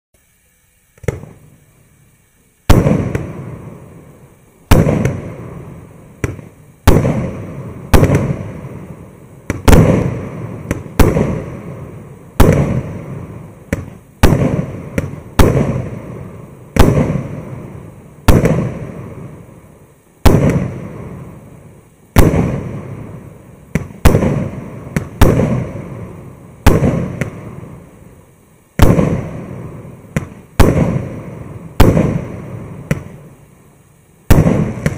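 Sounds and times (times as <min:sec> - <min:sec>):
small firework pop: 0:01.0 - 0:01.4, 0:06.2 - 0:06.5, 0:32.9 - 0:33.2.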